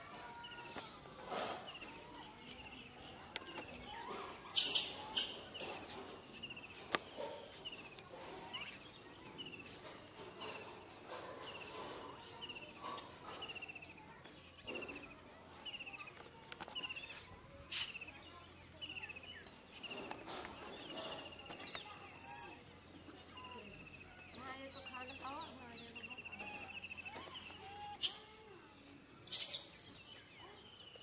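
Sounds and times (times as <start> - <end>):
bird chirping: 16.7 - 31.0.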